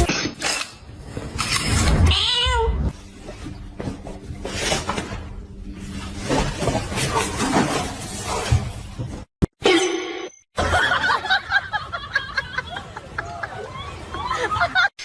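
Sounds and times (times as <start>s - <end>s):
cat meowing: 2.1s - 2.9s.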